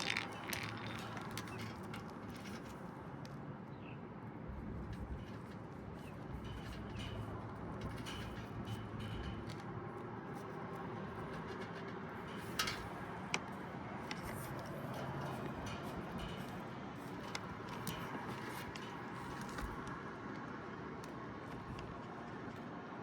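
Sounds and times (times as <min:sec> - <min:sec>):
metal parts clicking: 0:00.0 - 0:02.6.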